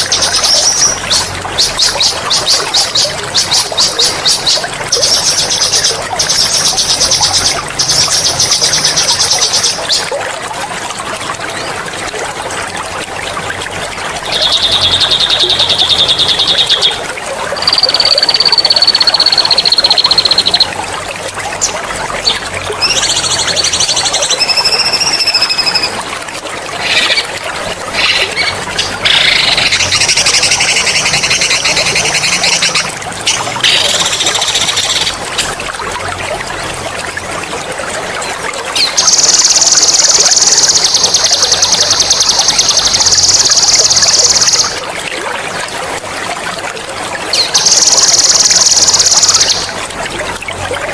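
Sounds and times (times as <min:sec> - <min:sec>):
trickling water: 0:00.0 - 0:50.9
songbird trilling: 0:17.6 - 0:20.7, 0:22.8 - 0:25.9.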